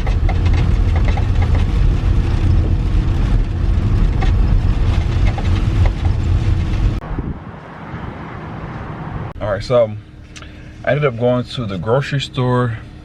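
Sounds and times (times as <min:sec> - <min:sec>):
rattling clicks: 0:00.0 - 0:01.8
vehicle low rumble: 0:00.0 - 0:13.0.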